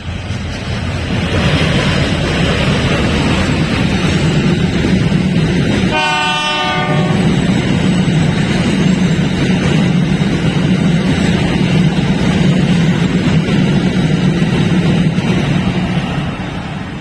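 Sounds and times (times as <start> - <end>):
locomotive engine drone: 0.0 - 17.0
train horn: 5.9 - 7.4.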